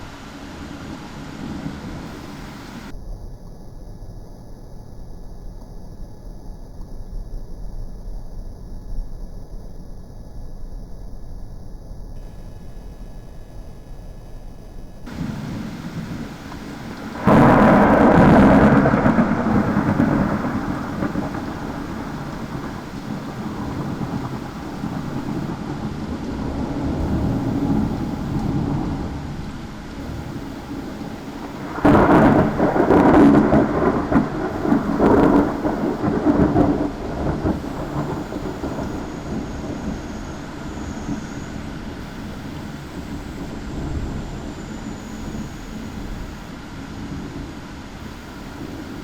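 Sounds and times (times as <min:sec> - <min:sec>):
steady rain: 0:00.0 - 0:03.0, 0:12.2 - 0:49.0
rolling thunder: 0:00.0 - 0:09.0, 0:10.6 - 0:49.0
loud thunderclap: 0:12.2 - 0:49.0.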